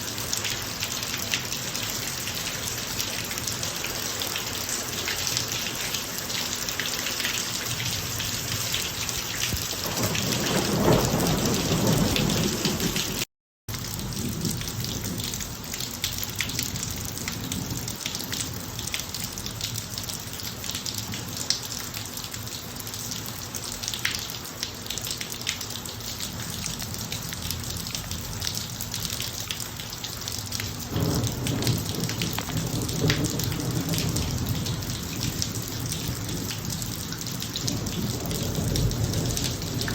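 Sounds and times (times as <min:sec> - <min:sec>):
heavy rain: 0:00.0 - 0:39.9
low thunder rumbling: 0:09.6 - 0:13.2, 0:30.9 - 0:39.9.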